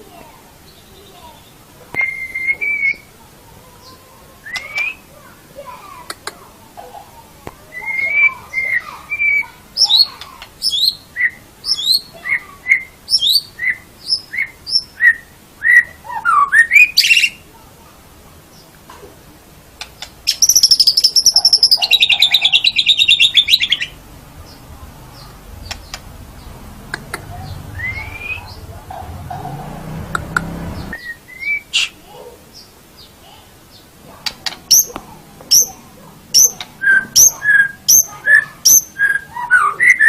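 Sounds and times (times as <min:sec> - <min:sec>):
bird singing whistled notes: 0:00.8 - 0:03.1, 0:04.4 - 0:05.1, 0:07.7 - 0:17.4, 0:20.3 - 0:24.0, 0:27.3 - 0:28.6, 0:30.8 - 0:32.0, 0:36.4 - 0:40.0.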